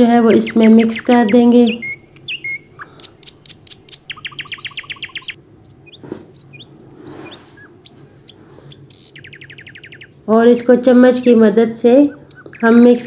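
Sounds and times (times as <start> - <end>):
small birds chirping: 0.0 - 13.0
soft rustle: 6.0 - 8.8.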